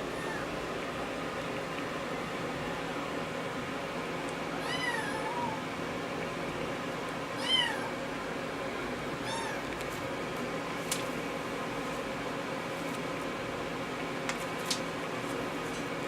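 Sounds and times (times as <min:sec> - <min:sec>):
kitten meowing: 0:04.6 - 0:05.6, 0:07.4 - 0:07.9, 0:09.2 - 0:09.7.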